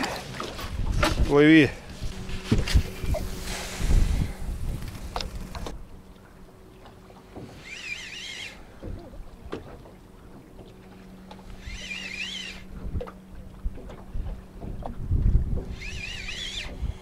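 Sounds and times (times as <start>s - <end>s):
bird warbling: 11.6s - 12.7s.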